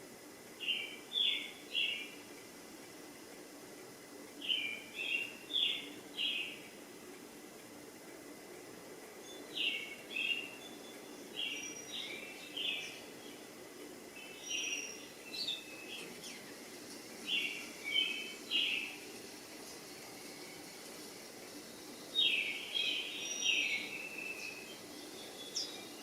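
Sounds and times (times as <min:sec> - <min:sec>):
steady background hiss: 0:00.0 - 0:26.0
bird chirping: 0:00.6 - 0:02.2, 0:04.4 - 0:06.7, 0:09.2 - 0:13.5, 0:14.1 - 0:19.2, 0:21.6 - 0:26.0.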